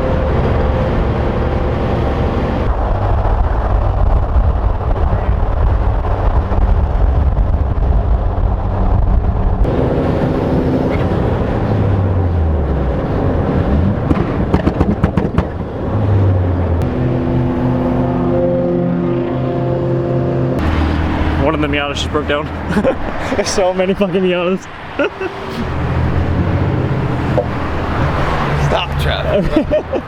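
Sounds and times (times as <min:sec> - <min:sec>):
engine crackles: 0:00.0 - 0:18.4, 0:20.4 - 0:30.0
car engine rumble: 0:00.0 - 0:30.0
road noise: 0:00.0 - 0:30.0.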